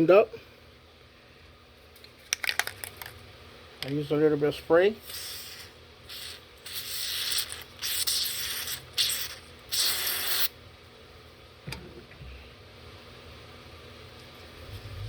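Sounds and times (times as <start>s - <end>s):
aerosol spray hissing: 5.0s - 10.5s.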